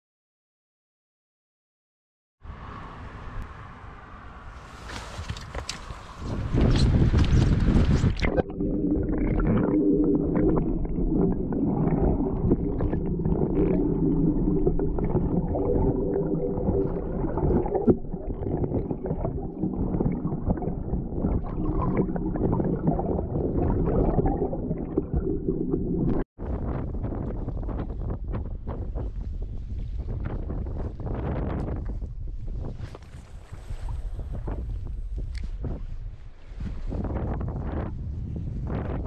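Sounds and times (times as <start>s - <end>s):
waves: 2.5s - 6.6s, 32.6s - 37.4s
wind on microphone: 4.6s - 39.0s
muffled underwater rumbling and gurgling: 6.2s - 39.0s.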